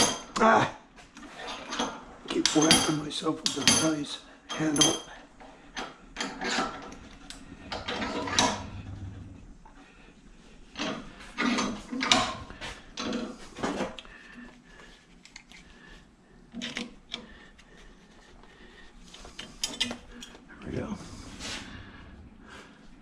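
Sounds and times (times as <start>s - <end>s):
metal clanks and knocks: 1.5s - 5.2s, 5.8s - 9.4s, 10.7s - 13.8s
metal scraping: 6.2s - 9.7s.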